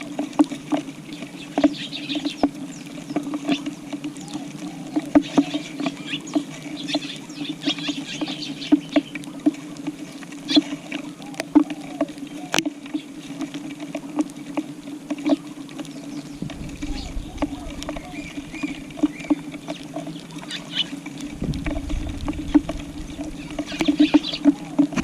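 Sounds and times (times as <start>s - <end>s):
sparrows chirping: 1.4s - 3.6s, 4.2s - 9.2s, 15.9s - 21.0s, 22.5s - 24.8s.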